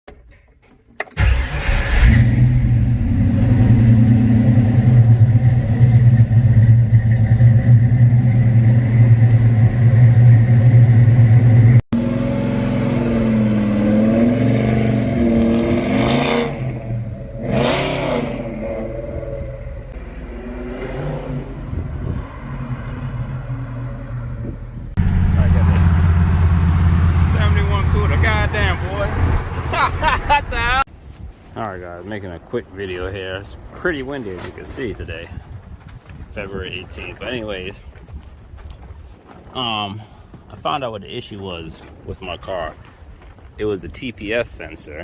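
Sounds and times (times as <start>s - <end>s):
car engine idling and revving: 1.2s - 30.9s.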